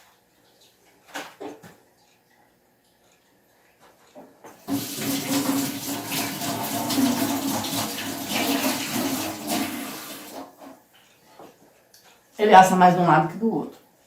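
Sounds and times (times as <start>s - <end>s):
water running from tap: 4.6s - 10.7s.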